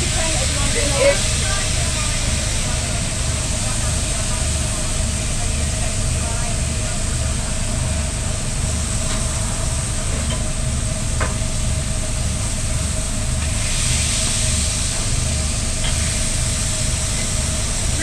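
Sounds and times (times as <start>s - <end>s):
hiss: 6.7s - 18.0s.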